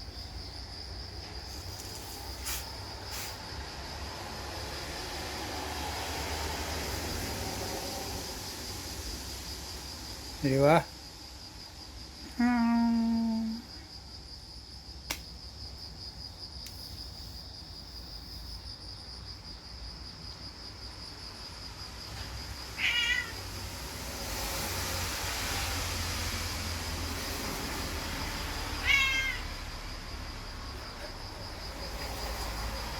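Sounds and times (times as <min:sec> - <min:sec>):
crickets chirping: 0:00.0 - 0:32.9
cat meowing: 0:22.8 - 0:23.4, 0:28.8 - 0:29.6.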